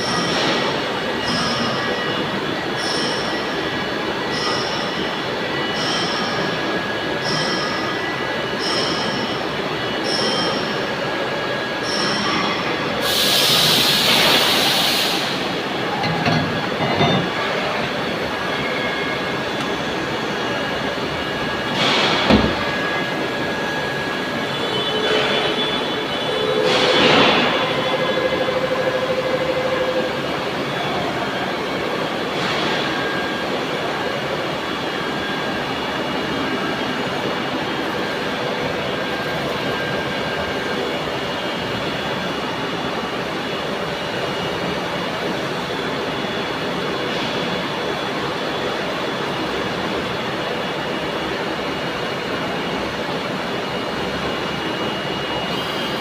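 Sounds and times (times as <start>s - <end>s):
machine-shop machinery running: 0.0s - 56.0s.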